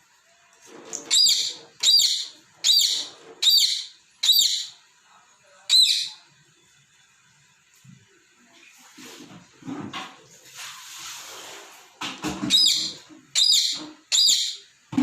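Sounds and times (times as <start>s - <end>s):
parrot squawking: 1.0s - 4.8s, 5.7s - 6.2s, 12.4s - 14.7s.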